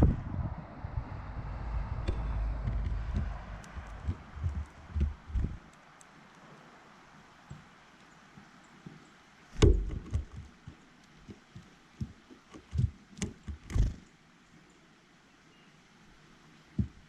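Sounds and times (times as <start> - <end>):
faint outdoor hiss: 0.0 - 17.0
birds pecking on a feeder: 1.3 - 14.1.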